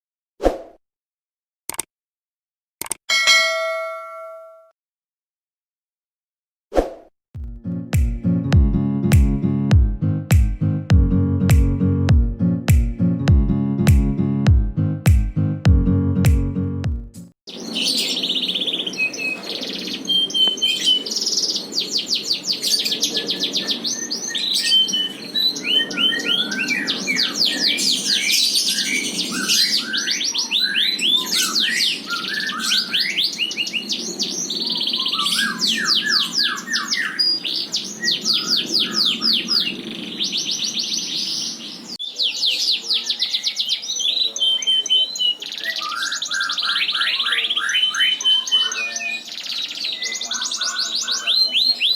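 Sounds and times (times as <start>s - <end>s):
canary singing trills: 17.5s - 51.9s.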